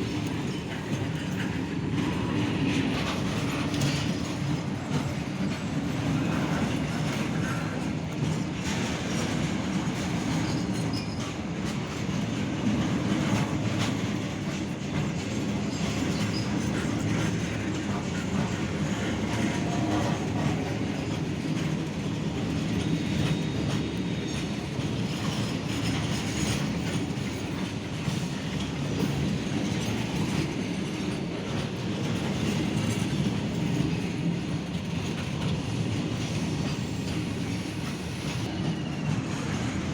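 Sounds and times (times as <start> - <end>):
train wheels rumbling on track: 0.0 - 39.9
wheels clicking over rail joints: 0.0 - 39.9.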